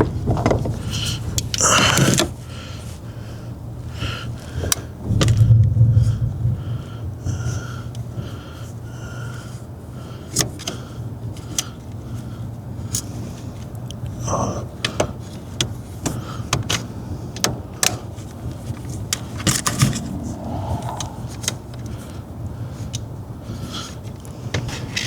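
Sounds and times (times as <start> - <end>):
low hum: 19.4 - 22.2.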